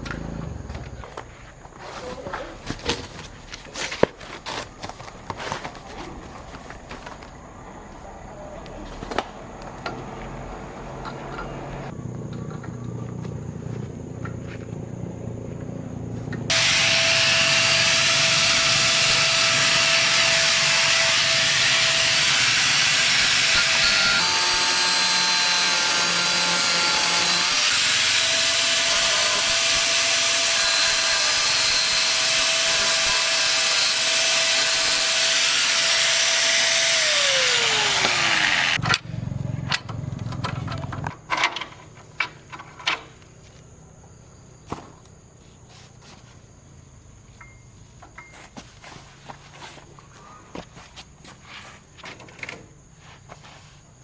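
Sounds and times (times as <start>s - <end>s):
power tool whining: 16.4s - 39.0s.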